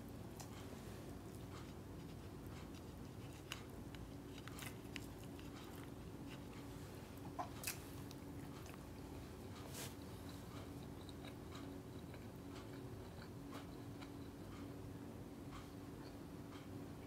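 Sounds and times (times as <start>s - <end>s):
steady low hum: 0.0s - 17.0s
person chewing: 1.3s - 14.8s.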